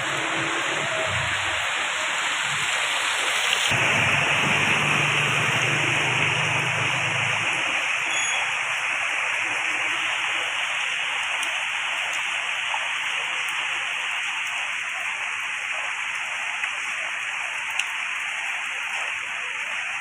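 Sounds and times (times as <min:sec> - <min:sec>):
water hissing: 0:00.0 - 0:14.9.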